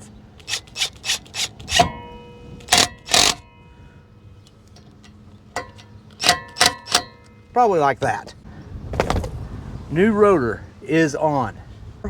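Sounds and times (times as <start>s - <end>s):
metallic clicks and scrapes: 0.0s - 3.5s, 4.4s - 7.4s
knocks on ringing metal rotor: 1.8s - 3.7s.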